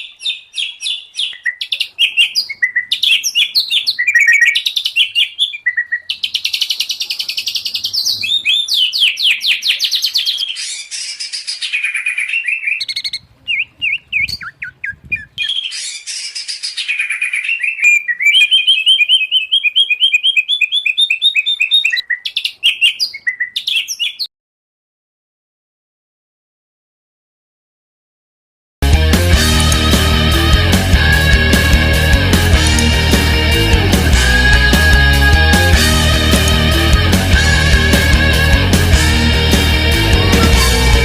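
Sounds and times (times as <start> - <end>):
songbirds singing: 0.0 - 24.3.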